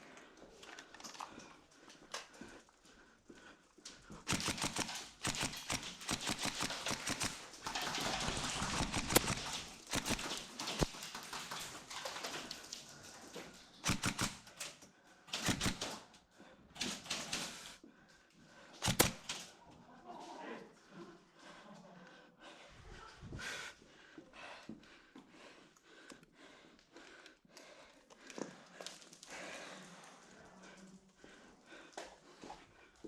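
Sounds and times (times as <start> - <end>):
airsoft guns firing bursts: 4.2 - 11.7, 13.8 - 14.7, 15.3 - 16.1, 18.8 - 19.5.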